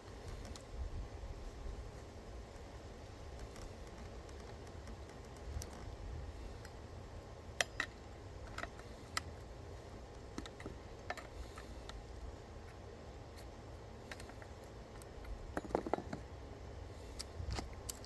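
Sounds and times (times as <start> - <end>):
low background hum: 0.0 - 18.0
light clicks and taps: 2.5 - 6.0.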